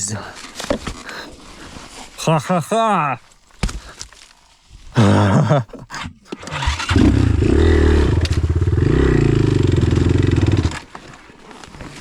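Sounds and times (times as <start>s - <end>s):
dirt bike engine revving: 6.4s - 10.9s.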